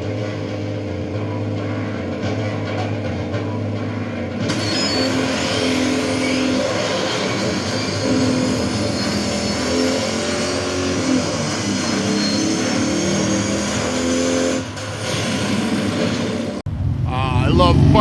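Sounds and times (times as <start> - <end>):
motorcycle engines revving: 5.7 - 15.2, 15.9 - 18.0.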